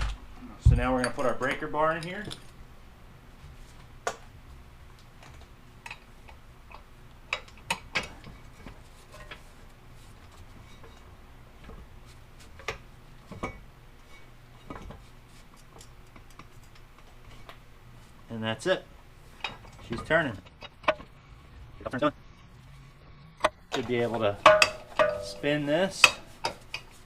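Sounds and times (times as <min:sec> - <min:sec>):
metal tools clinking and knocking: 0:19.4 - 0:21.1, 0:23.7 - 0:26.9.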